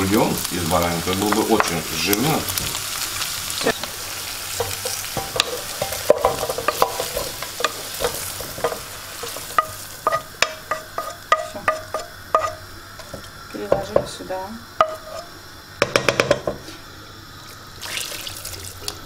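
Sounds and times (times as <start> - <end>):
food sizzling in a frying pan: 0.0 - 19.0
wooden spatula scraping pan: 4.6 - 13.2, 14.8 - 15.3
spatula and pan knocking metal pot: 4.6 - 14.2, 15.8 - 16.6.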